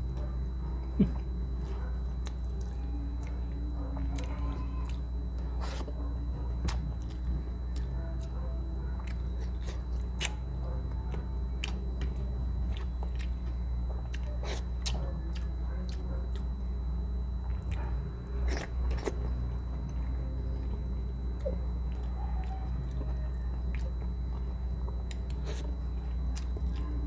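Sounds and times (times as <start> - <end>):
steady low hum: 0.0 - 27.0
person chewing wet mouth clicks: 9.0 - 10.4.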